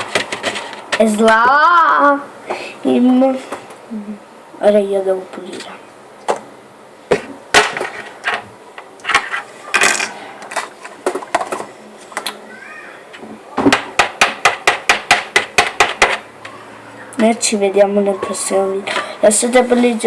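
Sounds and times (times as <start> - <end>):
kitchen utensils clattering: 7.2 - 12.2.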